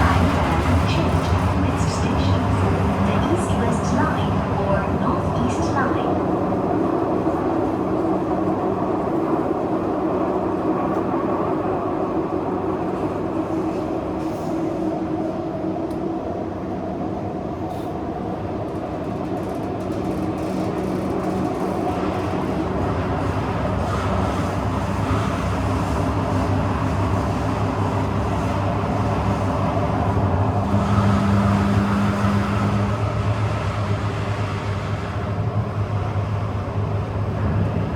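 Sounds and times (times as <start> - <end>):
train rumble and motor hum: 0.0 - 37.9.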